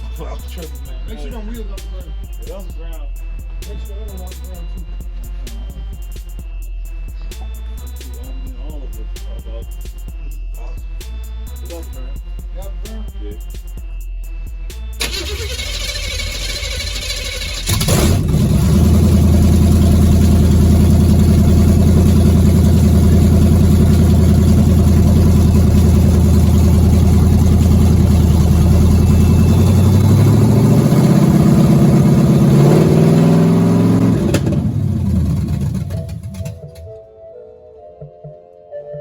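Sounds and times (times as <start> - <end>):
car engine revving: 15.0 - 36.9
car engine starting and running: 15.0 - 37.0.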